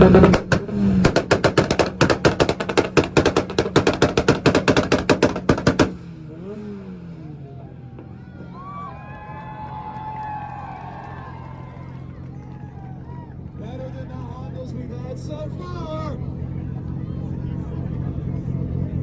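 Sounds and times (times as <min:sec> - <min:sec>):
exhaust pops and bangs: 0:00.0 - 0:06.6
car engine idling: 0:00.0 - 0:19.0.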